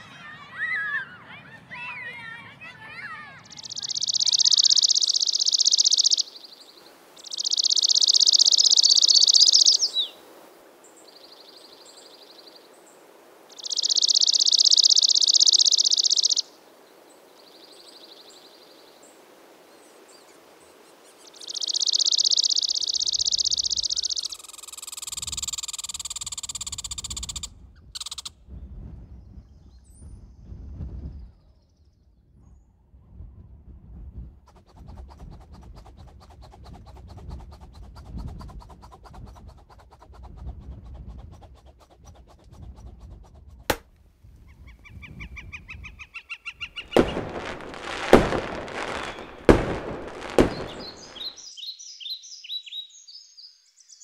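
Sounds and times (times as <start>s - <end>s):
bird singing rapid trills: 3.4s - 10.2s, 13.5s - 16.5s, 21.2s - 27.4s, 46.0s - 54.0s.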